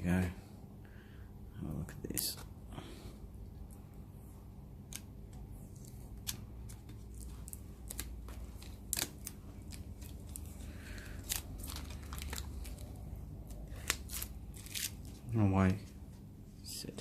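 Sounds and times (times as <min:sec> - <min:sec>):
steady low hum: 0:00.0 - 0:17.0
adhesive film peeling crackles: 0:04.8 - 0:15.3.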